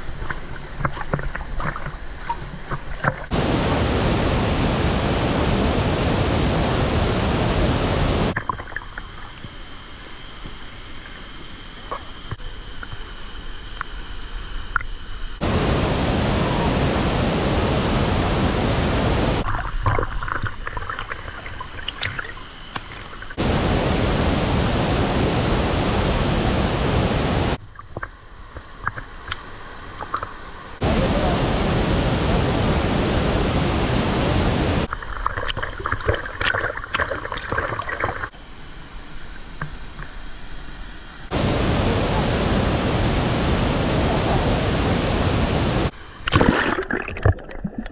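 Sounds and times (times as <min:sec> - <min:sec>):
small splashes and clicks: 0:00.1 - 0:03.3, 0:19.4 - 0:23.4, 0:34.9 - 0:38.3
waterfall rushing: 0:03.3 - 0:08.4, 0:15.4 - 0:19.4, 0:23.4 - 0:27.6, 0:30.8 - 0:34.9, 0:41.3 - 0:45.9.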